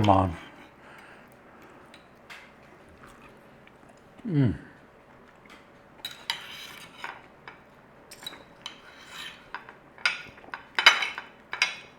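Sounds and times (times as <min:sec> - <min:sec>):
knife and fork scraping plate: 0:06.1 - 0:07.3, 0:08.3 - 0:11.8.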